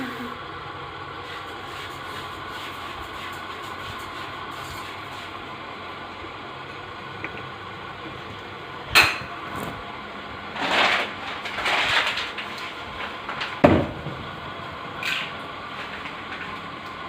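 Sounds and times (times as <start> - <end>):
scraping or rustling: 9.4 - 9.9, 10.5 - 13.6.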